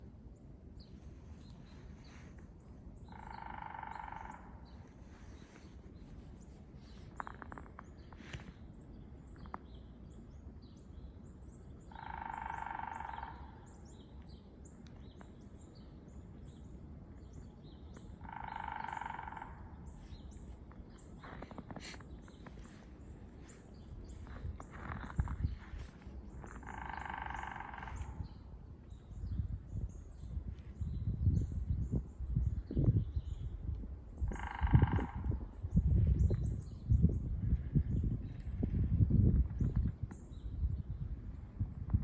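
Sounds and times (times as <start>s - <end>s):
small birds chirping: 3.0s - 38.6s
woodpecker drumming: 3.1s - 4.6s, 11.9s - 13.6s, 18.2s - 19.7s, 26.4s - 28.2s, 34.3s - 35.3s.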